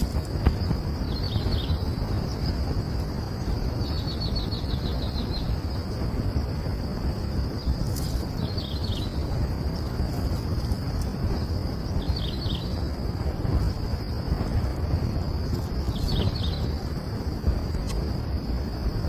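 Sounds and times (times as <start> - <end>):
small birds chirping: 0.0 - 6.0, 7.4 - 14.6, 15.2 - 17.1
high insect-like drone: 0.0 - 19.0
low outdoor rumble: 0.0 - 19.0.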